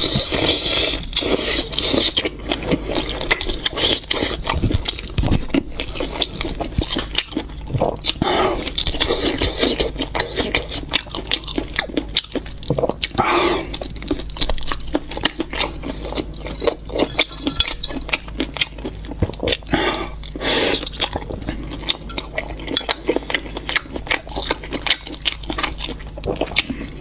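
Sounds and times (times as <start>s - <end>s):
biting and chewing fried food: 0.0s - 27.0s.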